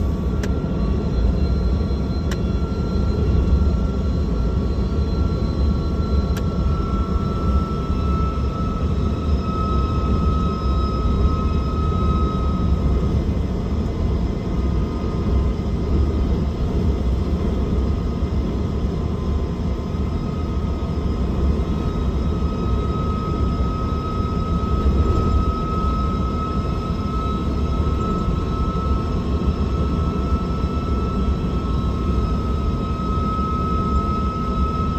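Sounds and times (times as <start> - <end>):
thin whine: 19.2 - 34.9.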